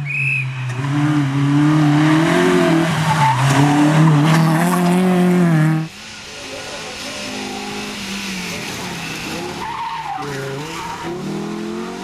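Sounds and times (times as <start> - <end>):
car engine revving hard: 7.2 - 12.0.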